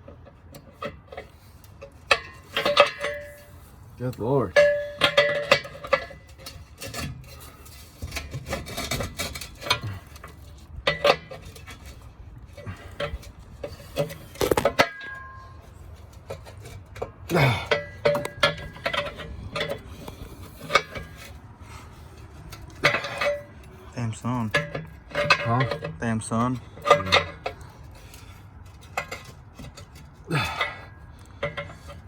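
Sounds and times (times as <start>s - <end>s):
metal parts clanking: 0.0s - 32.0s.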